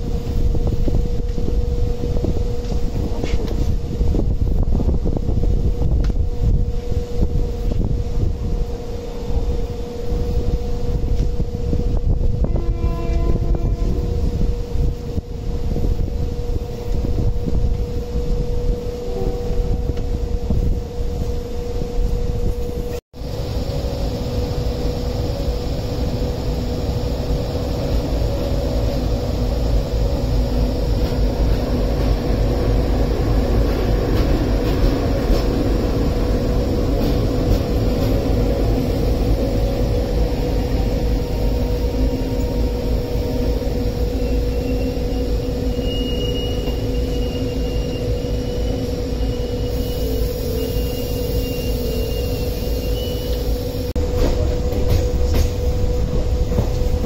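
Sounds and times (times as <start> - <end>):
train low rumble: 0.0 - 57.0.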